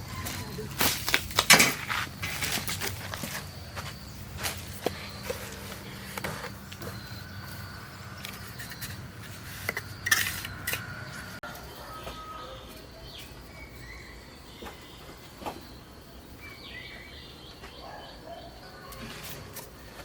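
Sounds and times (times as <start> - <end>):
faint bird chirps: 5.0 - 19.5.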